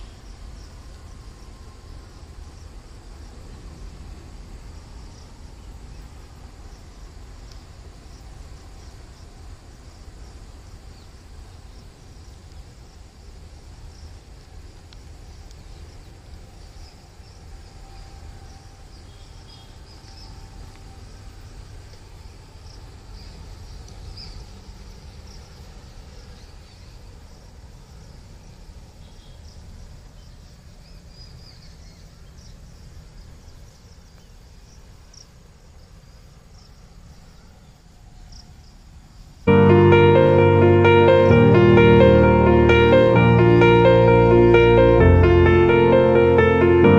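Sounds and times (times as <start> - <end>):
insects chirping: 0.0 - 46.9
constant low rumble: 39.5 - 46.9.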